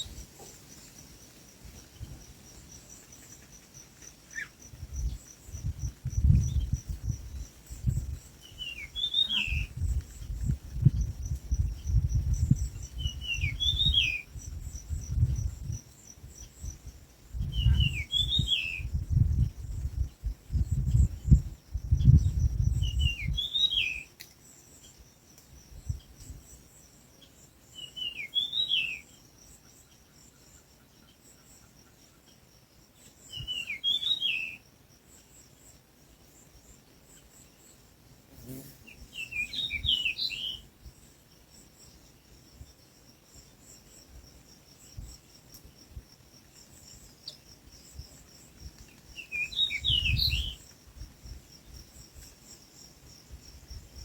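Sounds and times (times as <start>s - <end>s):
bird calling: 8.5s - 9.7s.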